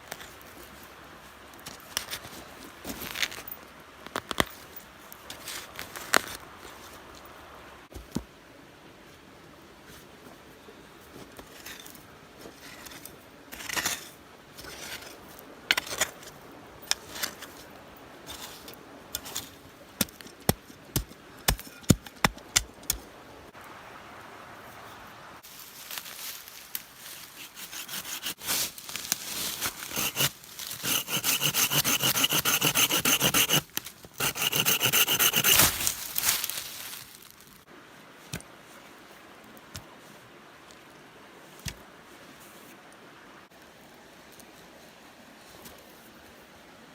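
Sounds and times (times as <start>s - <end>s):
rasping strokes on wood: 27.4s - 28.4s, 29.8s - 35.7s.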